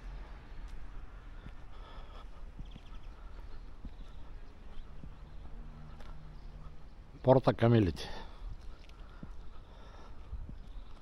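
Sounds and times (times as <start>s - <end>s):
soft footsteps: 0.0s - 7.1s, 8.4s - 11.0s
low outdoor rumble: 0.0s - 7.2s.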